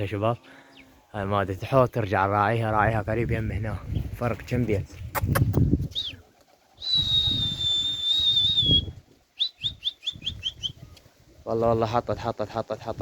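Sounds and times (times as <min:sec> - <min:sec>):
rustling flapping noise: 0:03.2 - 0:12.2.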